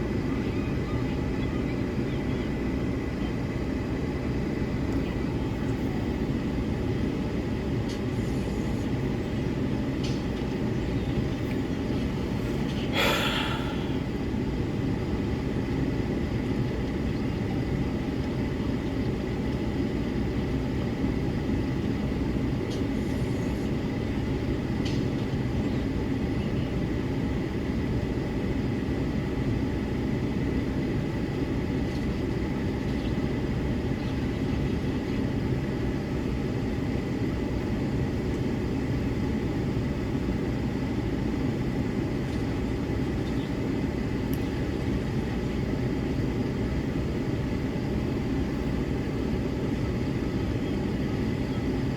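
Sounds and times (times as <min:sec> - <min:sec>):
vehicle engine rumble: 0:03.8 - 0:15.2.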